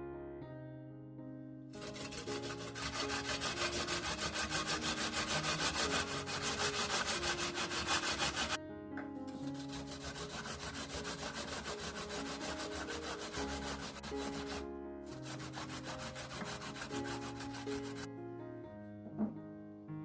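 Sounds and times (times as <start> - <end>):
soft background music: 0.0 - 20.0
fast rhythmic scraping: 1.8 - 8.6, 9.5 - 14.6, 15.2 - 18.1.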